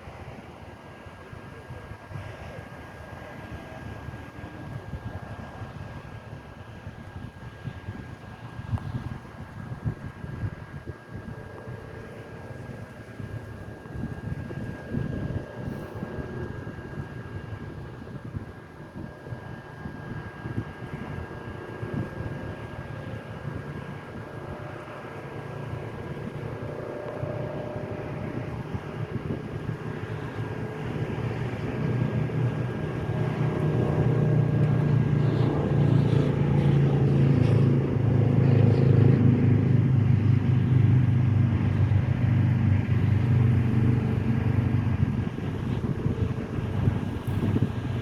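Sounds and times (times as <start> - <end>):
engine humming: 9.8 - 48.0.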